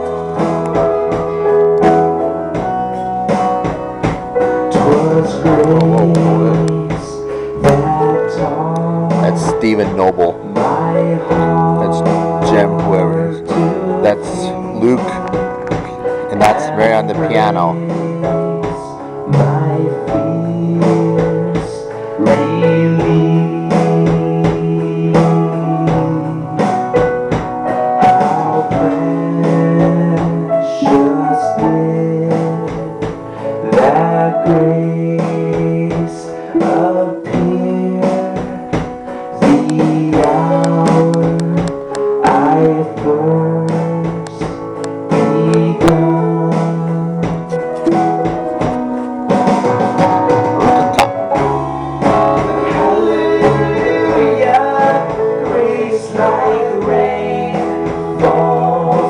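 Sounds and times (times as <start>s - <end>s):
live band playing: 0.0s - 59.0s
piano: 0.0s - 59.0s
person singing: 4.6s - 27.1s, 27.7s - 59.0s
guitar strumming: 36.7s - 59.0s.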